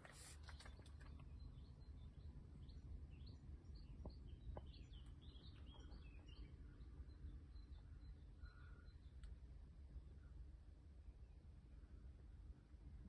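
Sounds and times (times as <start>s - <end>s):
faint low background rumble: 0.0s - 13.0s
faint bird chirps: 0.1s - 9.4s.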